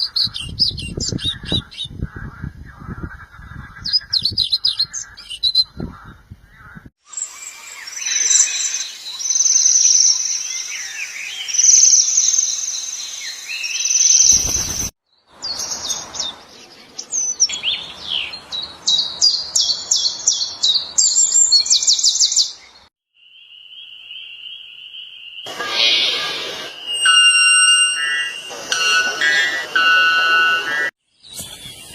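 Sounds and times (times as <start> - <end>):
birds trilling: 23.6 - 30.9
steady high tone: 25.5 - 30.9.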